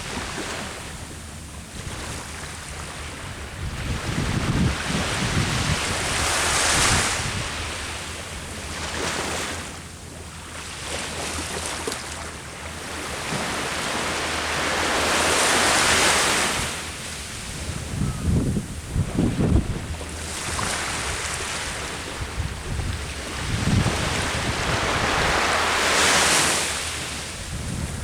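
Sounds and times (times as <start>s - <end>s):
wind buffeting microphone: 1.7s - 9.0s, 16.3s - 28.0s
ocean surf breaking: 13.0s - 28.0s.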